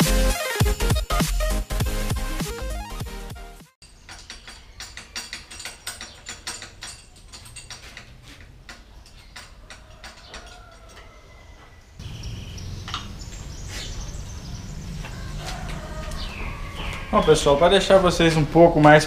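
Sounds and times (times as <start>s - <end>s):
birds chirping: 3.8s - 19.0s.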